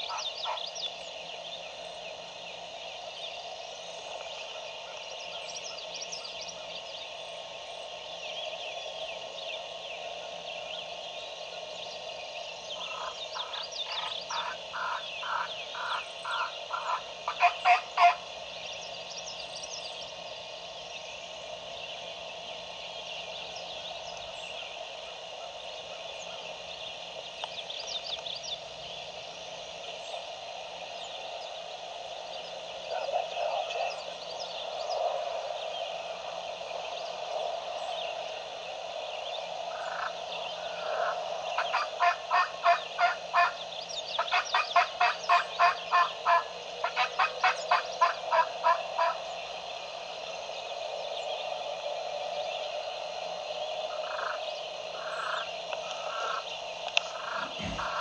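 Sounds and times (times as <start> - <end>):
frogs calling: 0.0 - 58.0
wild turkey yelping: 57.2 - 58.0.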